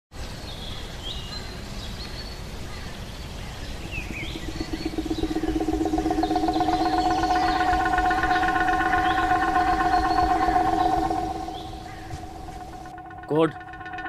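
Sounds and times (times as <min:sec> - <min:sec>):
outdoor background noise: 0:00.1 - 0:14.0
birds chirping: 0:02.8 - 0:14.0
steady droning tone: 0:03.6 - 0:14.0.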